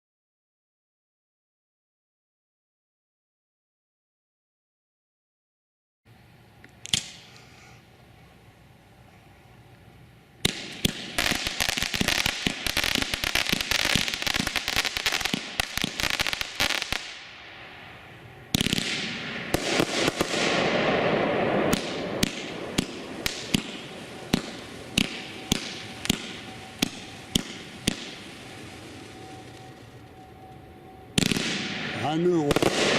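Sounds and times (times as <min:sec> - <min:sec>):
fireworks shots and crackling: 0:10.4 - 0:17.7, 0:18.5 - 0:30.0, 0:31.1 - 0:32.9
loud firework bang: 0:18.6 - 0:28.3, 0:31.2 - 0:32.9.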